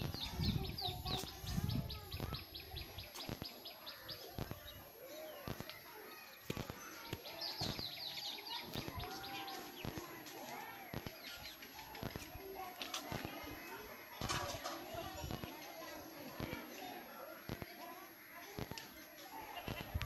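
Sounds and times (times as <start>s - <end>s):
scattered bird calls: 0.0s - 13.7s
small birds chirping: 0.0s - 20.0s.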